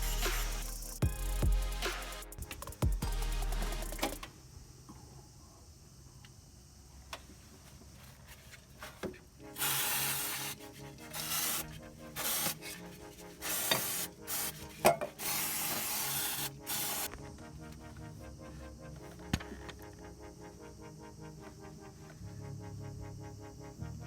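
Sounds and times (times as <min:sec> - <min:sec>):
abrasive rubbing on engine parts: 0:09.5 - 0:17.1.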